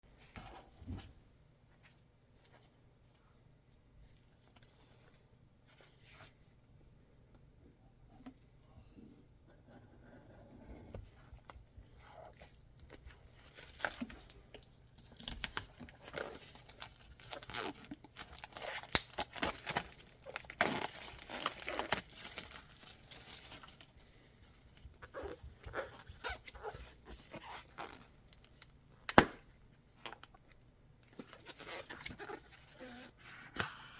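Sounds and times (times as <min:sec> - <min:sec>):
packaging crinkling and tearing: 0:12.0 - 0:24.0.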